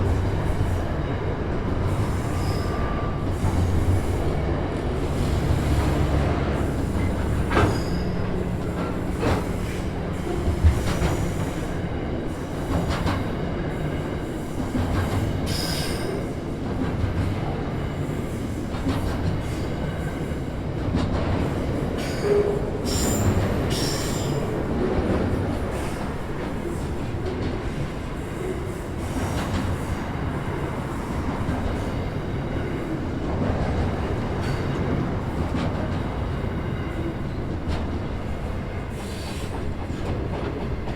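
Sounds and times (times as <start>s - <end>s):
freight train rumbling: 0.0s - 40.9s
high wheel squeals: 22.0s - 24.4s.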